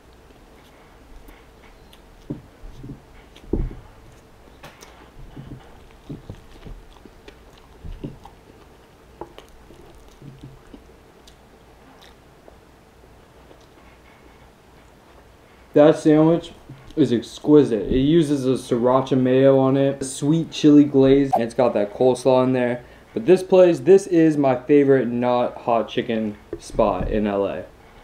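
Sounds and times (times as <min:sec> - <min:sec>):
person biting and chewing: 0:00.1 - 0:12.2.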